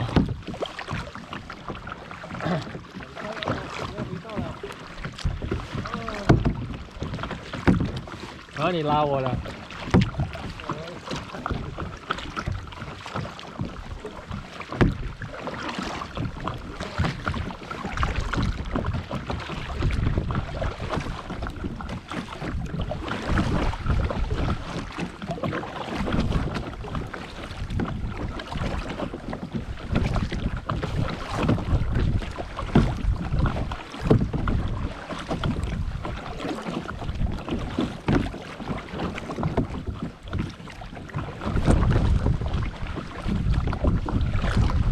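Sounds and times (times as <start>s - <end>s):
paddle strokes in water: 0.0s - 44.9s
wind buffeting microphone: 16.2s - 25.0s, 26.0s - 36.3s, 39.2s - 44.9s.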